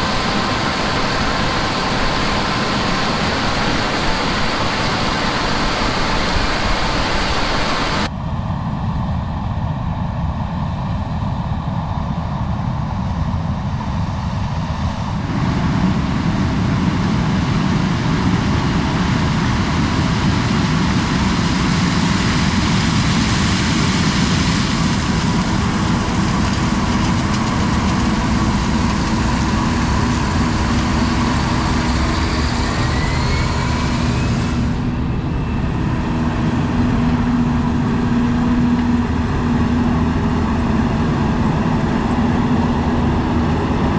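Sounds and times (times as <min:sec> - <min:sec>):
heavy farm machinery running: 0:00.0 - 0:08.1, 0:24.1 - 0:43.9
rising whine: 0:00.0 - 0:08.1, 0:29.2 - 0:43.9.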